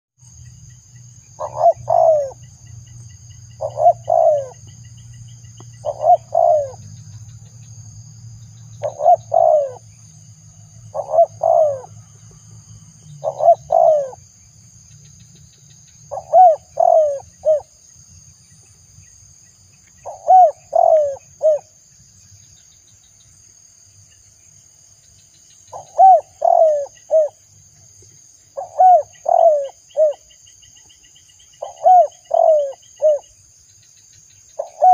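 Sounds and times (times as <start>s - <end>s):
dove cooing: 1.4s - 2.4s, 3.6s - 4.7s, 5.8s - 6.8s, 8.8s - 9.8s, 10.9s - 12.0s, 13.2s - 14.2s, 16.1s - 17.7s, 20.0s - 21.7s, 25.7s - 27.4s, 28.6s - 30.3s, 31.6s - 33.3s, 34.6s - 34.9s.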